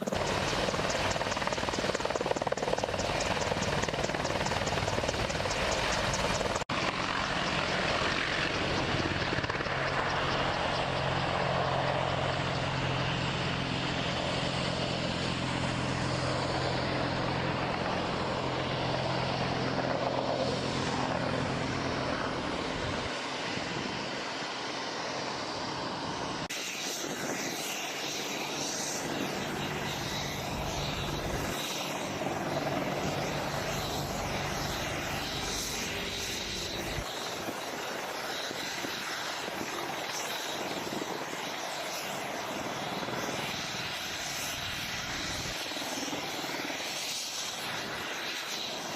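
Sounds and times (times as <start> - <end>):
aircraft engine hum: 0.0 - 48.9.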